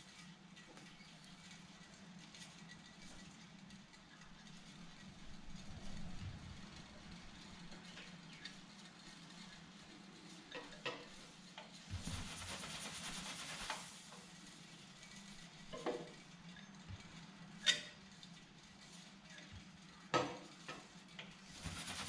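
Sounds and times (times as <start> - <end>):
steam hissing from jets: 11.9 - 14.1, 21.5 - 22.0.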